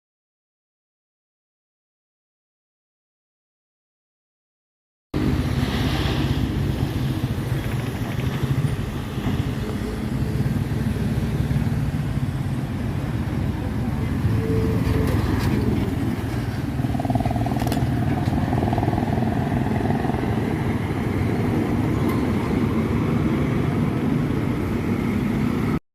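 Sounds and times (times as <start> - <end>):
vehicles passing: 5.2 - 25.8.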